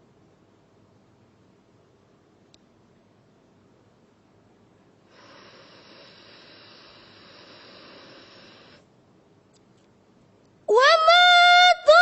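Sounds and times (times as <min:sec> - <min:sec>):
person breathing in: 0:05.1 - 0:08.8.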